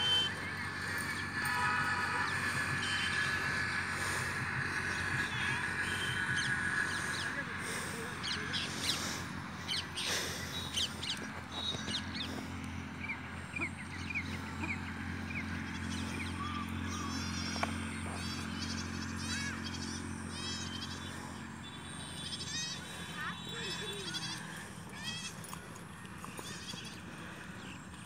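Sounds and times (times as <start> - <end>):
steady low hum: 0.0 - 19.1
birds chirping: 0.0 - 28.0.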